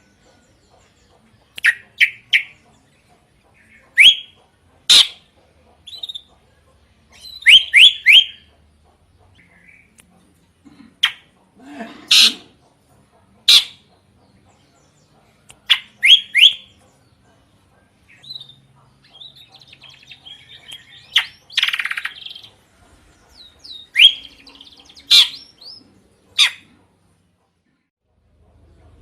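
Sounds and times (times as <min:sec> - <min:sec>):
soft bird chattering: 0:00.0 - 0:10.1, 0:12.1 - 0:26.8
bird singing whistled notes: 0:03.9 - 0:05.2, 0:07.1 - 0:08.4, 0:15.7 - 0:16.7, 0:23.6 - 0:25.8.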